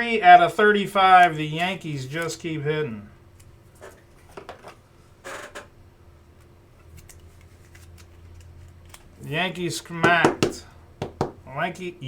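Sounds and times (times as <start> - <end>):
steady low hum: 0.0 - 12.0
trading cards rustling and clicking: 6.4 - 10.6.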